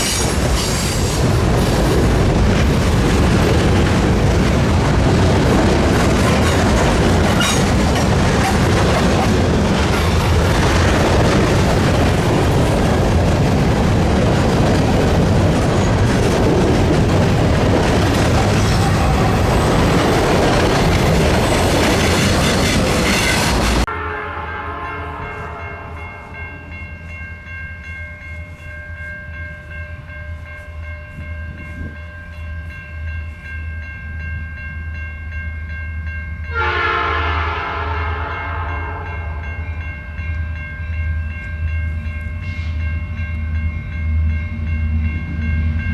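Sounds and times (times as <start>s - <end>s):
train wheel and rail roar: 0.0s - 45.9s
train horn blast: 23.1s - 26.4s, 36.5s - 39.7s.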